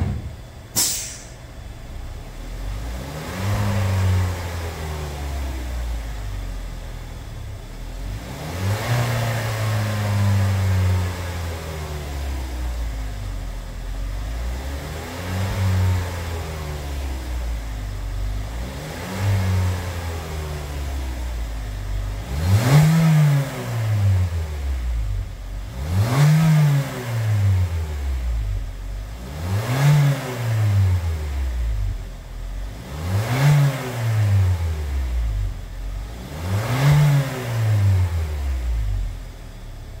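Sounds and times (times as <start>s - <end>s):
car engine idling and revving: 0.0s - 40.0s.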